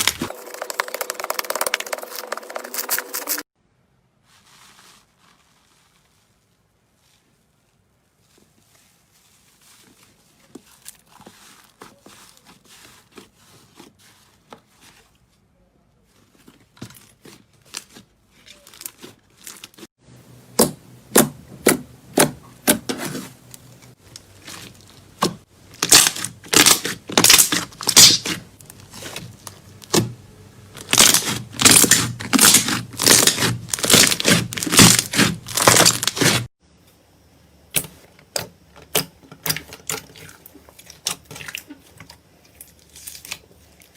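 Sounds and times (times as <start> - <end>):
slime crackling and popping: 25.7 - 30.1, 30.8 - 36.4.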